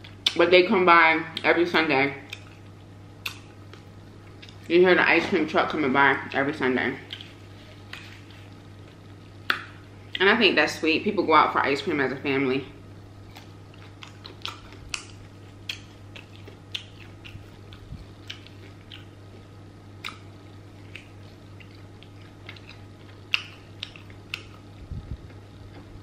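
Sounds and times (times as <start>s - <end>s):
person chewing crunchy food: 2.3s - 4.7s, 7.0s - 10.2s, 13.2s - 26.0s
low hum: 2.3s - 26.0s.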